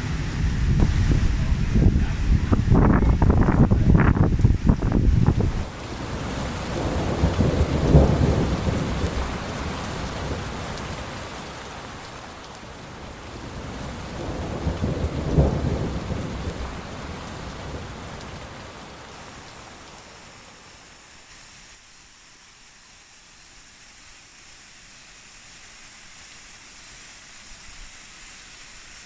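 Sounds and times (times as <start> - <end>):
thunder rumbling: 0.0 - 19.1
steady hiss: 0.0 - 29.0.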